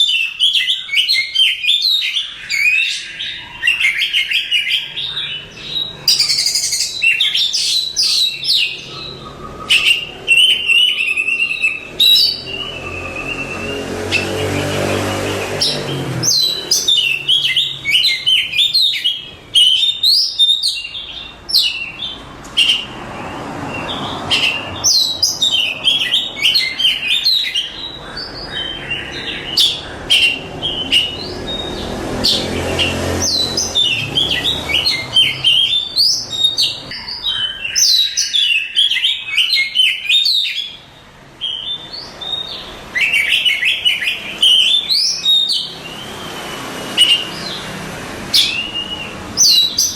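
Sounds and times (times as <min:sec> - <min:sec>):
bird singing whistles and chirps: 0:00.0 - 0:22.9, 0:23.7 - 0:47.7, 0:48.3 - 0:49.9.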